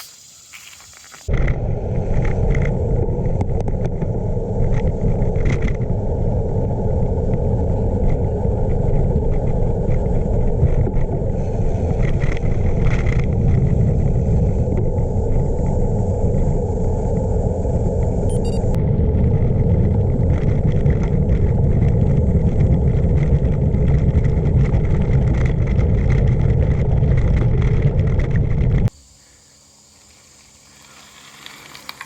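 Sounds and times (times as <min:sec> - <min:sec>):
bike tyres rolling on gravel: 0:00.0 - 0:17.4, 0:19.0 - 0:28.9, 0:29.9 - 0:32.0
wind buffeting microphone: 0:01.3 - 0:28.9.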